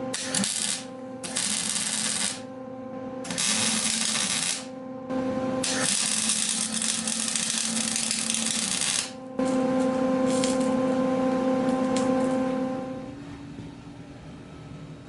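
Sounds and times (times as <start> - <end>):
small power tool humming: 0.1 - 2.4, 3.2 - 4.7, 5.6 - 13.0.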